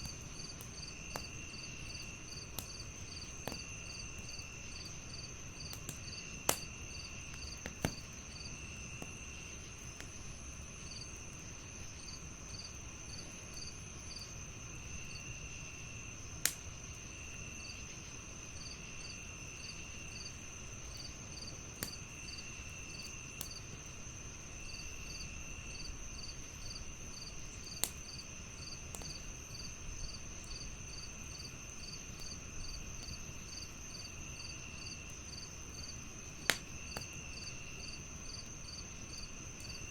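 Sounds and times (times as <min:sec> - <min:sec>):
wood fire popping: 0:00.0 - 0:10.4, 0:16.3 - 0:17.1, 0:19.9 - 0:39.9
crickets chirping: 0:00.0 - 0:39.9.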